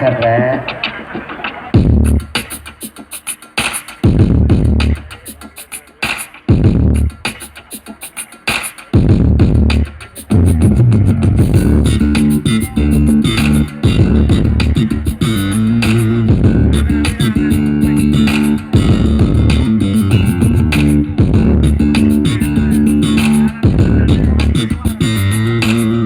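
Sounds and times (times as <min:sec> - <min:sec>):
loud music with heavy bass: 0:00.0 - 0:26.0
plucked guitar: 0:10.8 - 0:26.0.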